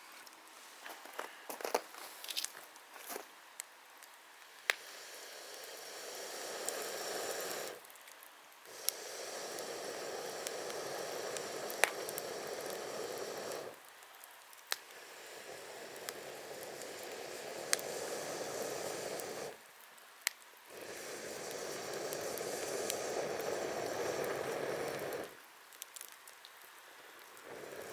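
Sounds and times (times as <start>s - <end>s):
campfire crackling pops: 1.6s - 27.9s
rushing hiss: 4.6s - 7.9s, 8.6s - 19.7s, 20.7s - 25.4s, 26.6s - 27.9s.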